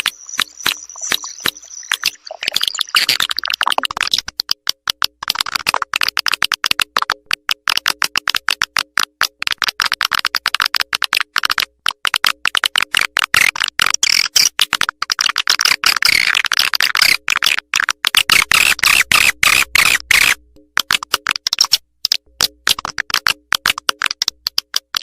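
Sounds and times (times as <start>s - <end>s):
recorded bird call chirps: 0.0s - 3.3s.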